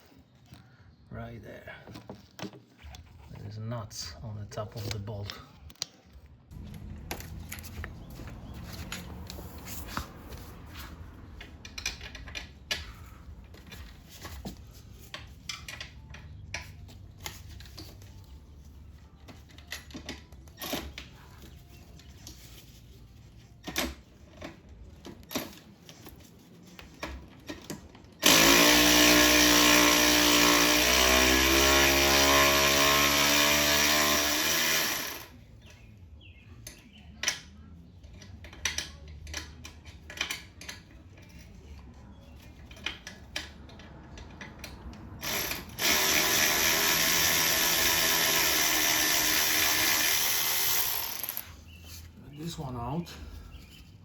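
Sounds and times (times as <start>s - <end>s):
power drill running: 28.2s - 35.3s, 45.2s - 51.5s.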